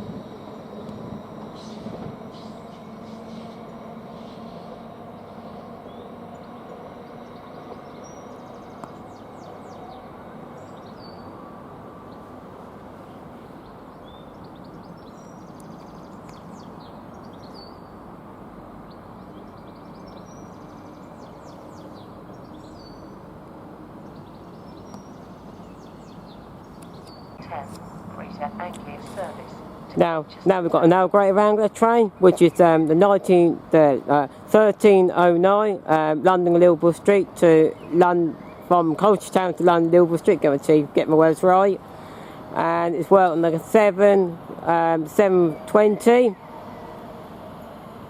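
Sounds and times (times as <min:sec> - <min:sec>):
small birds chirping: 0:00.4 - 0:11.4, 0:12.0 - 0:23.3, 0:23.9 - 0:33.6, 0:34.2 - 0:47.0.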